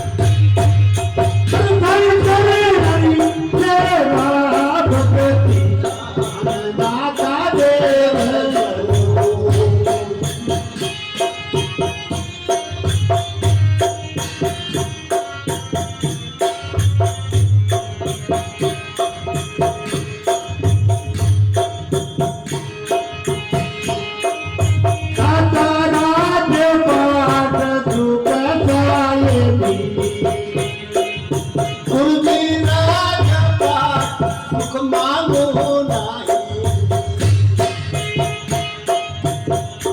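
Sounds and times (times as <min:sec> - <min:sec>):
drum beats: 0:00.0 - 0:39.9
jingling rattle percussion: 0:00.0 - 0:39.9
person singing: 0:01.5 - 0:11.3, 0:25.2 - 0:37.0.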